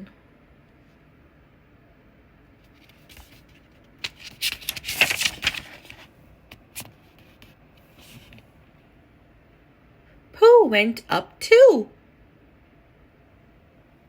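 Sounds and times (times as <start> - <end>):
book page turning: 2.7 - 8.5.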